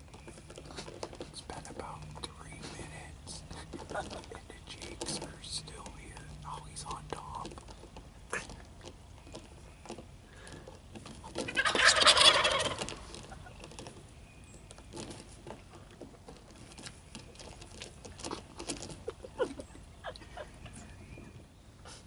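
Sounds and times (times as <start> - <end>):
faint ticks and rustles: 0.0 - 22.0
turkey gobbling: 11.3 - 14.0.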